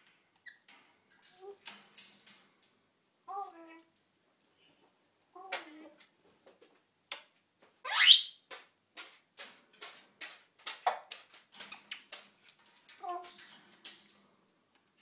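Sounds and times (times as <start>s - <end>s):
parrot rising whistle: 7.9s - 8.4s.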